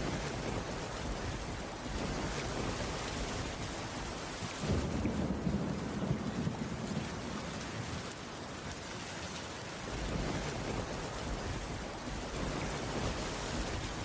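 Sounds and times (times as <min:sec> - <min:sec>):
distant thunder rumble: 0:00.0 - 0:08.6, 0:09.8 - 0:14.0
steady rain falling: 0:00.0 - 0:14.0.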